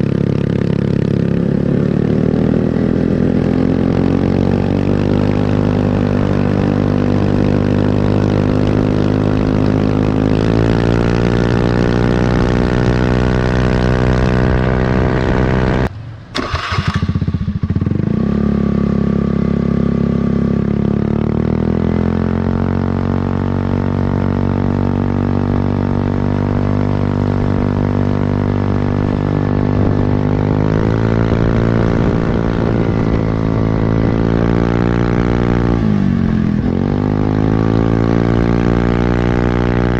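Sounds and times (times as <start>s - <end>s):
scooter engine revving: 0.0s - 24.6s.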